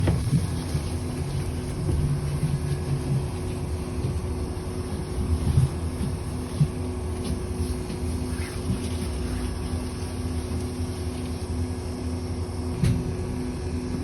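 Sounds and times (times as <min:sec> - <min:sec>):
bus engine and road rumble: 0:00.0 - 0:14.0
faint steady whine: 0:00.0 - 0:14.0.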